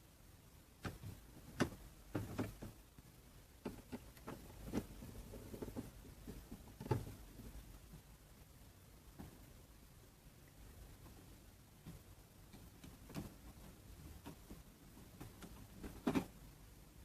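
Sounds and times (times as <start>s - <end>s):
plastic keyboard clicks and knocks: 15.2s - 16.4s.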